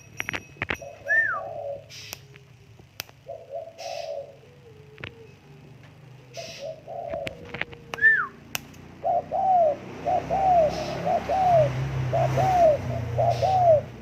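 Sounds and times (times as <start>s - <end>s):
dove cooing: 0.7s - 14.0s
sharp clicks: 2.0s - 3.2s, 7.2s - 8.8s.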